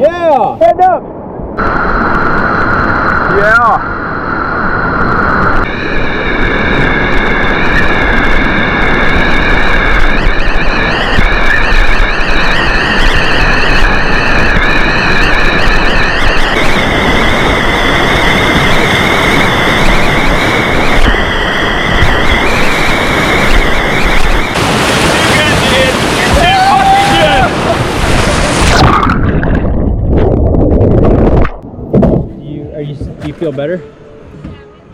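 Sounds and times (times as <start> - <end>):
thin high whine: 1.6 - 29.2
whitewater rapids rushing: 22.0 - 29.2.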